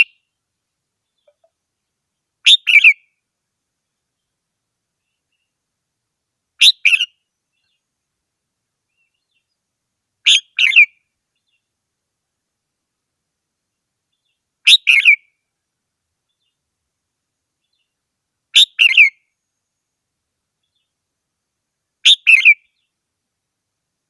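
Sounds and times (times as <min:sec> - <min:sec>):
bird singing short phrases: 0:00.0 - 0:00.4, 0:01.0 - 0:01.6, 0:02.4 - 0:03.2, 0:06.6 - 0:07.9, 0:10.2 - 0:11.7, 0:14.1 - 0:15.3, 0:17.6 - 0:19.5, 0:22.0 - 0:23.0.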